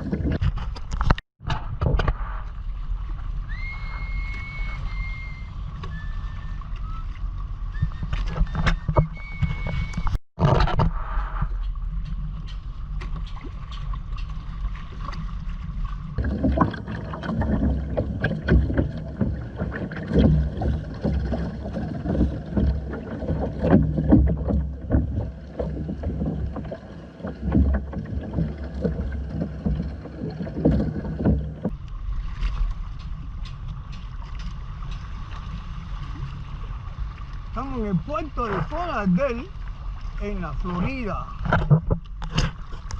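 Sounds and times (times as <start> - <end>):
wind rumble on microphone: 0.0 - 38.2
water splashing against hull: 0.0 - 42.9.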